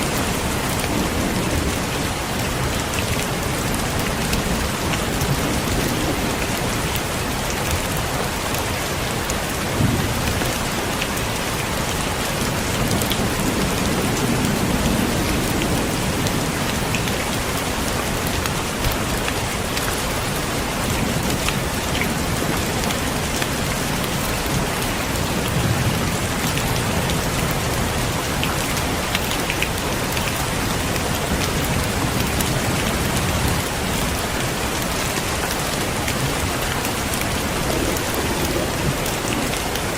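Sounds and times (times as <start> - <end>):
heavy rain falling: 0.0 - 39.9
low thunder rumbles: 9.6 - 23.9, 35.9 - 39.9.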